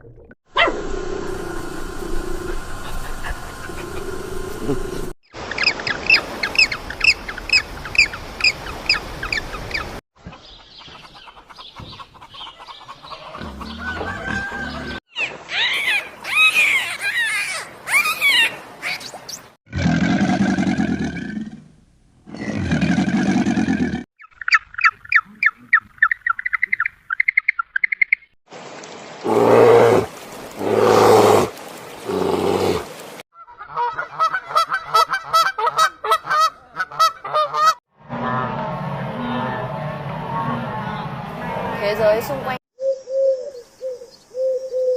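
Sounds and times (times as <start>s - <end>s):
long low calls: 0.7s - 5.2s
farm animal calls: 11.0s - 19.0s.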